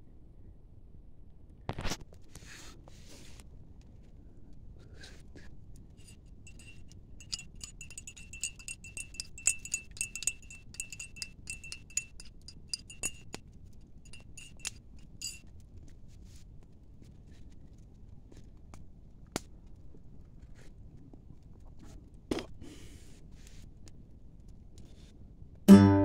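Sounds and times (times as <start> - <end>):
light clinking strikes with ringing: 6.0 - 13.4, 14.1 - 15.4.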